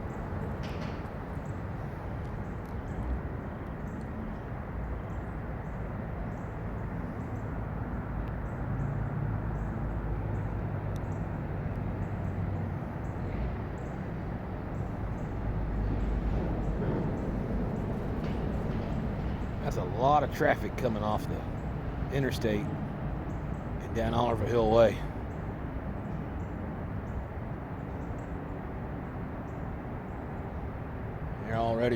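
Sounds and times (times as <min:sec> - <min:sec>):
low engine hum: 0:00.0 - 0:28.1
distant traffic: 0:00.0 - 0:31.9
diesel engines rumbling: 0:06.8 - 0:27.6, 0:30.0 - 0:31.9.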